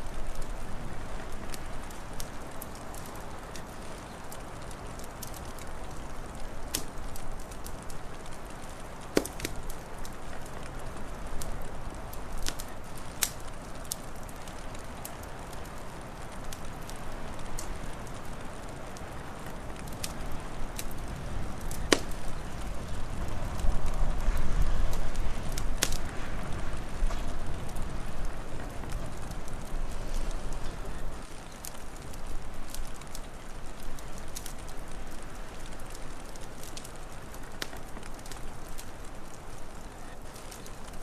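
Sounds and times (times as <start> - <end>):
steady rushing hiss: 0.0 - 41.0
wood fire crackling and popping: 0.0 - 41.0.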